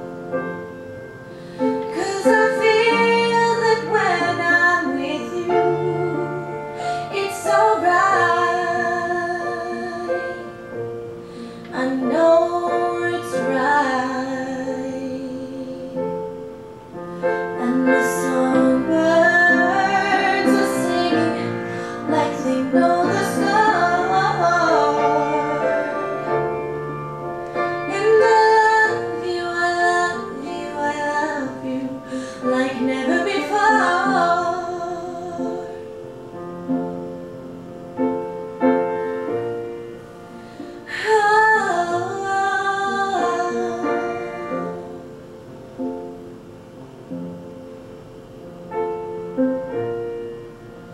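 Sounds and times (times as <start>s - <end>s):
piano accompaniment: 0.0s - 50.9s
woman singing pop ballad: 1.8s - 10.5s, 11.6s - 16.0s, 17.6s - 26.0s, 27.8s - 35.8s, 40.8s - 44.9s.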